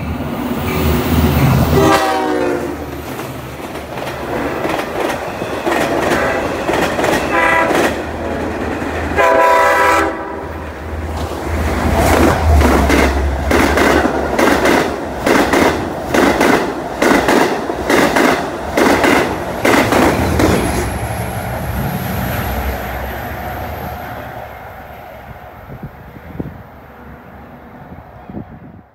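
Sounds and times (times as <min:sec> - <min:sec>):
low train rumble: 0:00.0 - 0:28.9
train wheels clacking on rail joints: 0:02.8 - 0:09.2, 0:11.1 - 0:21.1.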